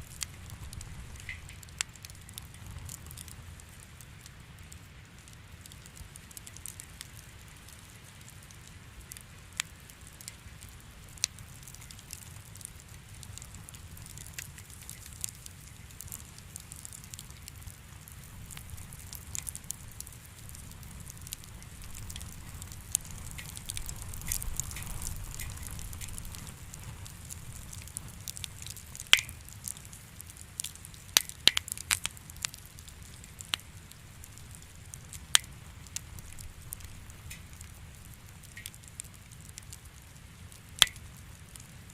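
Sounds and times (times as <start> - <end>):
wood fire crackling and popping: 0.0 - 41.9.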